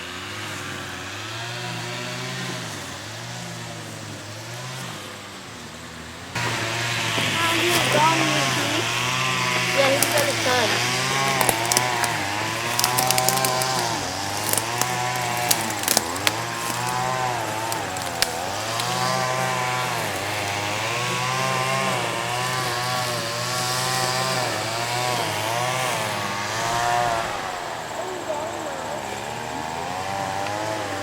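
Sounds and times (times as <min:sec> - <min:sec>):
small engine revving: 0:00.0 - 0:31.0
brush and twigs snapping: 0:09.0 - 0:21.4.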